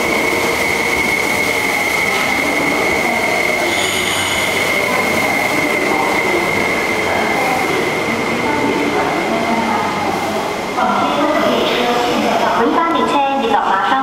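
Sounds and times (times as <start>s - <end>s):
train wheels squealing: 0.0s - 11.1s
train cars rumbling: 0.0s - 14.0s.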